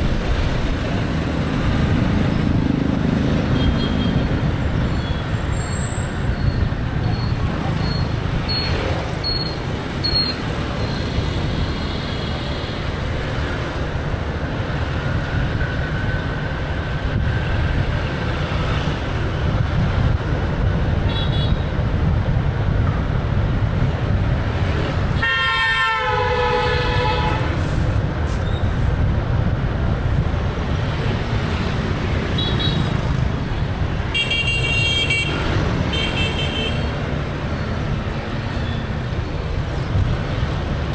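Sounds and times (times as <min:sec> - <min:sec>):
motorbike engine and road rumble: 0:00.0 - 0:40.9
loud vehicle horn blaring: 0:25.2 - 0:27.6, 0:34.1 - 0:37.0.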